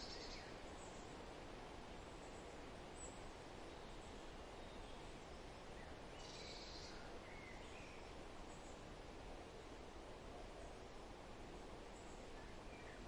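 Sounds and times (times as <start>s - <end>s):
faint bird chirps: 0.0s - 1.2s, 2.2s - 8.8s, 11.9s - 13.0s.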